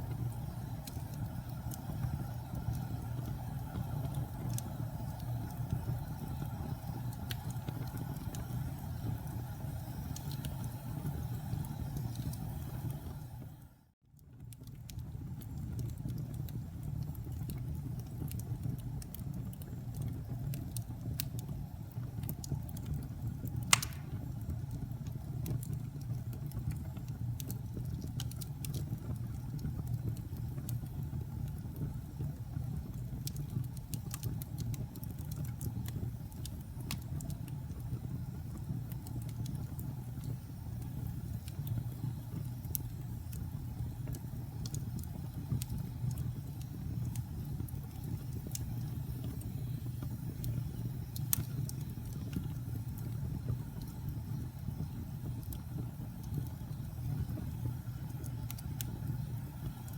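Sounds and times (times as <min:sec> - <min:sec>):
campfire low rumble: 0:00.0 - 0:13.8, 0:14.7 - 0:59.9
burning wood crackling: 0:17.0 - 0:59.9
loud wood snap: 0:23.7 - 0:24.2.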